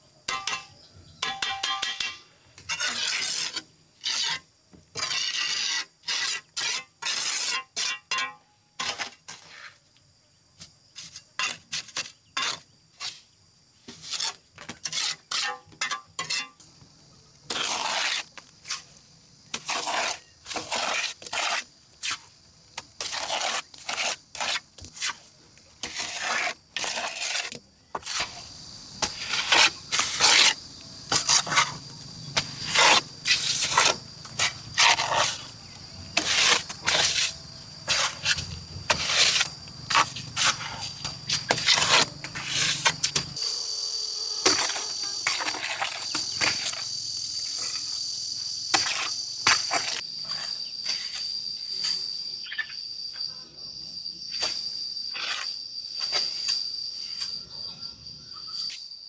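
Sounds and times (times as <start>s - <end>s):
crickets trilling: 0.0s - 59.0s
rough scraping strokes: 23.0s - 43.6s, 44.4s - 48.0s.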